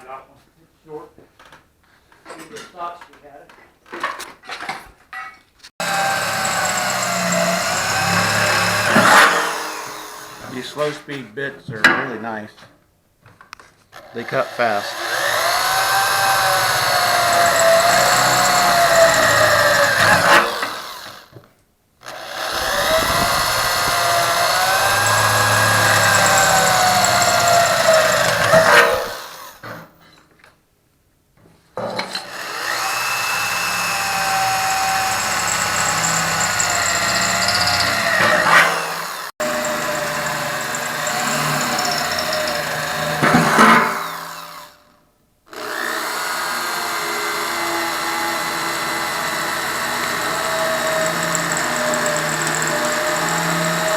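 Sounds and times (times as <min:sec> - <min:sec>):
electric drill boring through steel: 0:05.8 - 0:10.6, 0:14.0 - 0:21.3, 0:22.0 - 0:29.6, 0:32.0 - 0:44.8, 0:45.5 - 0:53.9.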